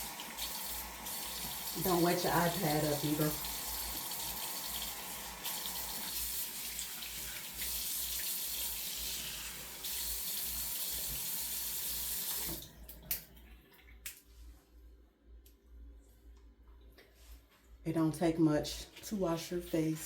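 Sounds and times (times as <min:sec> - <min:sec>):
sink tap running: 0:00.0 - 0:13.2.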